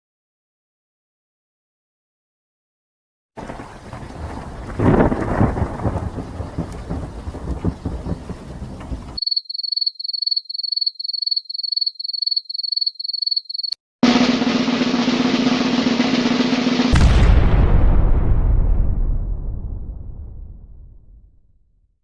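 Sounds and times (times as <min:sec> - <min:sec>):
rain: 0:03.4 - 0:09.2
thunder: 0:03.4 - 0:09.2, 0:14.0 - 0:21.4
drum roll: 0:14.0 - 0:21.0.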